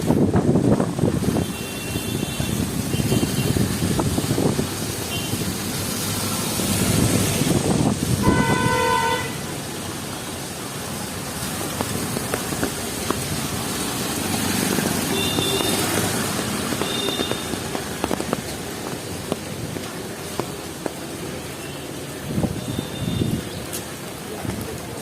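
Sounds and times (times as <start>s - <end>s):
city street traffic: 0.0s - 25.0s
heavy rain: 0.0s - 25.0s
loud horn blast: 8.2s - 9.6s.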